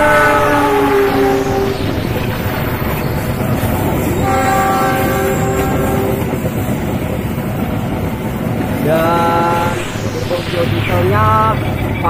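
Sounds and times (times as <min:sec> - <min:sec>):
train horn chord: 0:00.0 - 0:01.9, 0:04.1 - 0:06.3
train wheels rumbling on rails: 0:00.0 - 0:12.0.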